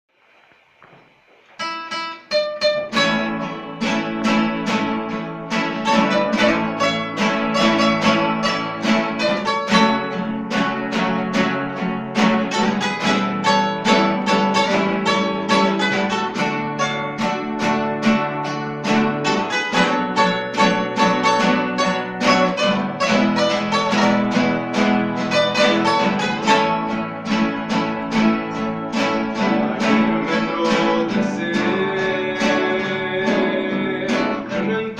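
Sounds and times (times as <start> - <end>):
guitar ensemble playing: 0.9 - 34.9.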